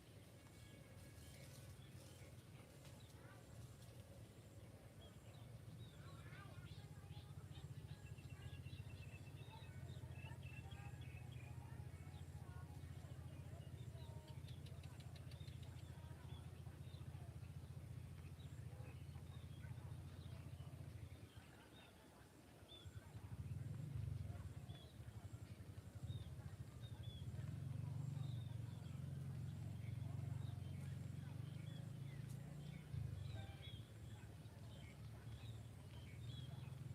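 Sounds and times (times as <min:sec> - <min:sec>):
small birds chirping: 0:00.0 - 0:36.9
low steady rumble: 0:22.8 - 0:36.9.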